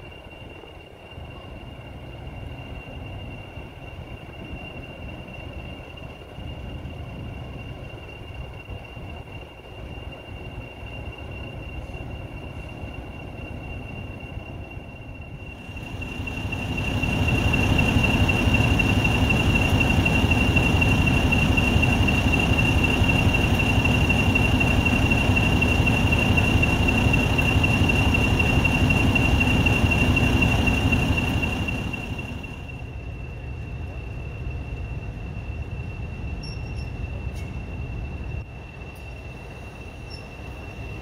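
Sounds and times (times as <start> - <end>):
train passing with high squeal: 0.0 - 41.0.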